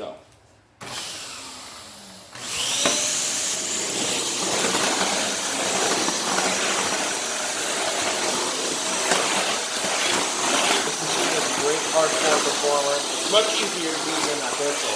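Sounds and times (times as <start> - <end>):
vacuum cleaner motor whine: 0.8 - 14.9.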